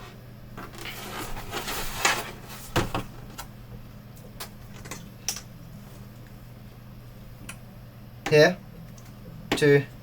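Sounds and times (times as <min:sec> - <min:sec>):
plastic rubbing and sliding: 0:00.8 - 0:02.8.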